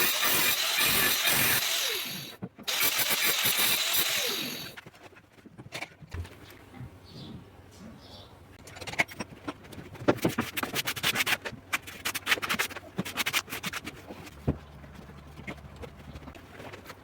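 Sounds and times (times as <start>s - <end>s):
tools clicking and scraping on tile: 8.6s - 17.0s.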